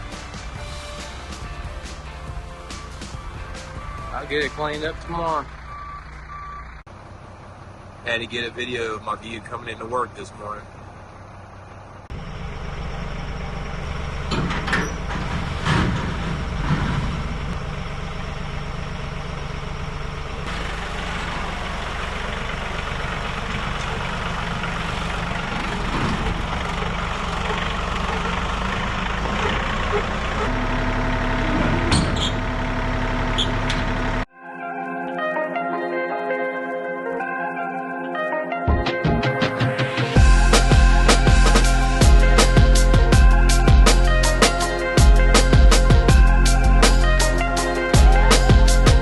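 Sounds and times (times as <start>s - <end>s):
vehicle engine running: 0.0s - 34.3s, 39.8s - 49.0s
knocks and rattles: 14.3s - 17.8s.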